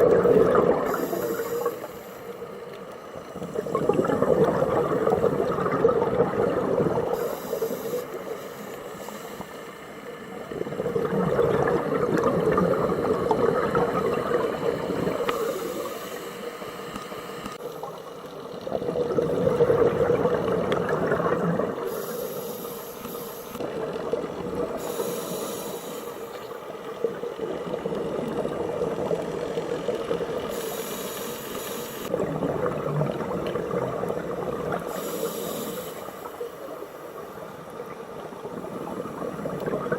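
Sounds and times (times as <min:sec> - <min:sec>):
exhaust bubbles rushing: 0:00.0 - 0:01.0, 0:03.6 - 0:07.1, 0:10.6 - 0:15.2, 0:18.7 - 0:21.9
regulator inhale hiss: 0:00.8 - 0:03.5, 0:07.0 - 0:10.4, 0:13.0 - 0:18.1, 0:21.8 - 0:23.6, 0:24.7 - 0:26.9, 0:30.3 - 0:32.1, 0:34.8 - 0:37.5.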